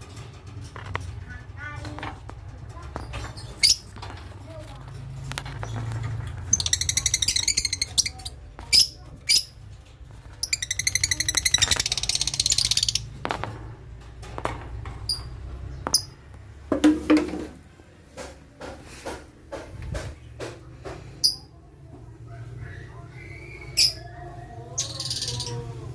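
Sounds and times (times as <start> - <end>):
lovebirds shrill chattering: 3.0 - 4.0, 5.6 - 9.6, 10.2 - 13.2, 22.6 - 25.9
high chirps and clicks: 6.4 - 8.3, 10.4 - 13.2.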